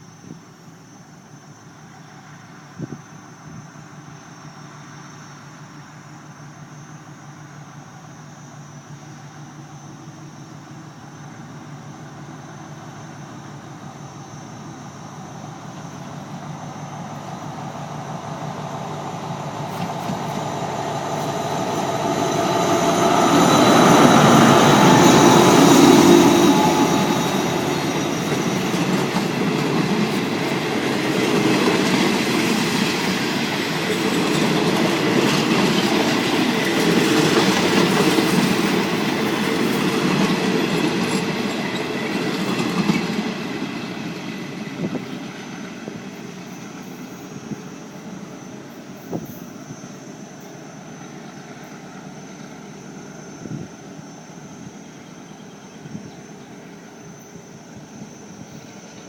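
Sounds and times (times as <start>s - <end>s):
diesel locomotive approaching: 0.0s - 59.0s
train wheels clicking over rail joints: 13.1s - 50.0s.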